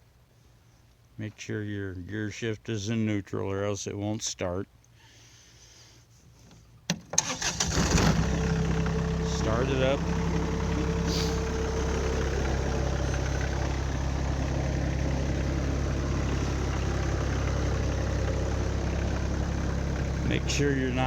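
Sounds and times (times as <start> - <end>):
tractor diesel engine idling: 7.2 - 21.0.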